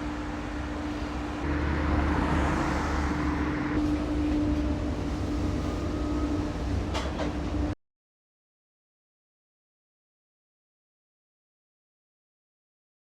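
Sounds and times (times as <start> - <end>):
road and wind noise: 0.0 - 7.6
pickup truck engine hum: 0.3 - 3.8.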